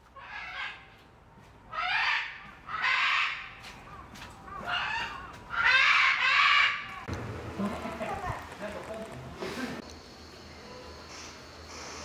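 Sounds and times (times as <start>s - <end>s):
bird calling: 1.7s - 7.1s.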